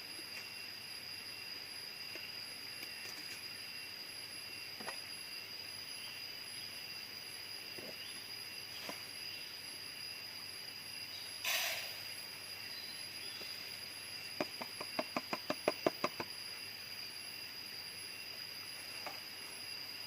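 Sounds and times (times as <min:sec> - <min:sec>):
faint hiss: 0:00.0 - 0:14.6
insects buzzing: 0:00.0 - 0:20.0.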